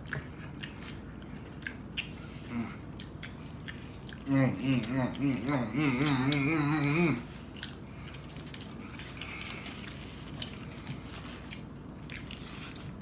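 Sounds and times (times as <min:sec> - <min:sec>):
chewing food: 0:00.0 - 0:13.0
person humming: 0:04.3 - 0:07.3.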